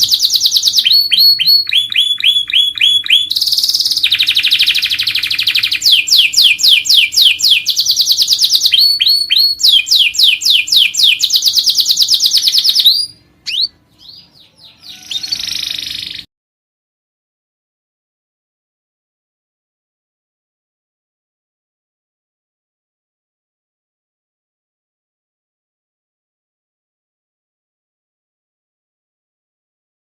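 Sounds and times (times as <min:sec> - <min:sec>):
canary singing trills: 0:00.0 - 0:16.3.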